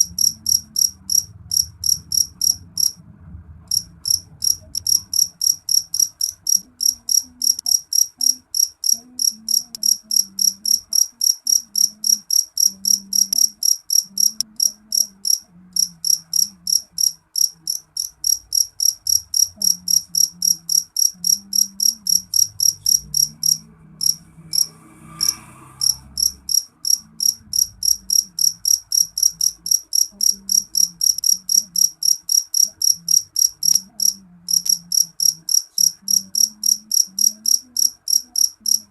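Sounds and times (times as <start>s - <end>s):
cricket chirping: 0.0s - 3.0s, 3.7s - 38.9s.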